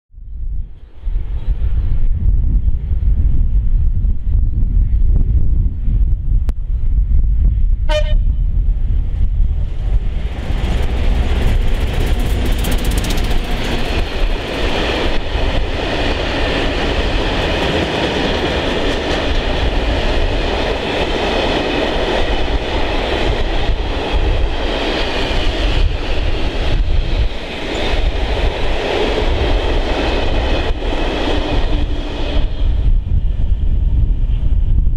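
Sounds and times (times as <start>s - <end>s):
locomotive horn toot: 7.9s - 8.4s.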